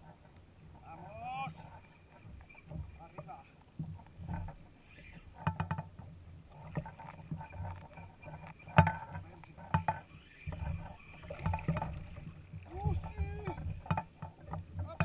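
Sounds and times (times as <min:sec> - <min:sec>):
gear knocking and clicking: 0:02.3 - 0:15.0.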